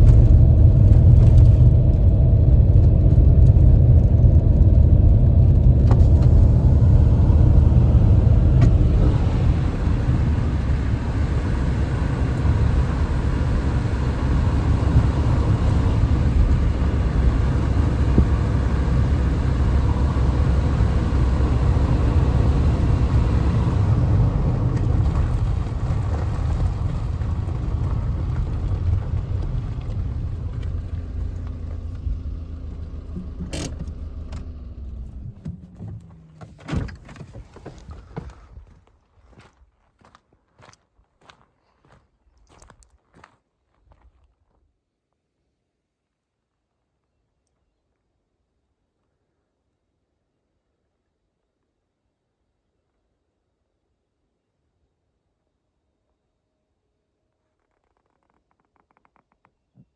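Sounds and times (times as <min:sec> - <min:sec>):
motor vehicle engine rumble: 0:00.0 - 0:38.7.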